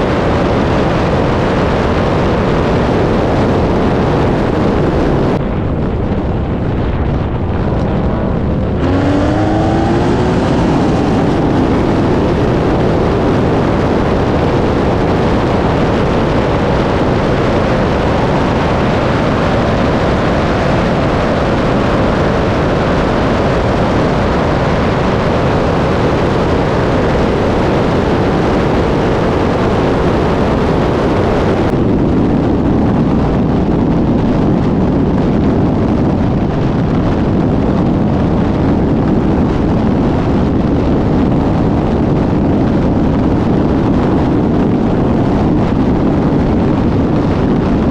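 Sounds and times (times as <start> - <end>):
wind noise: 0.0 - 47.9
race car engines accelerating: 8.0 - 15.1.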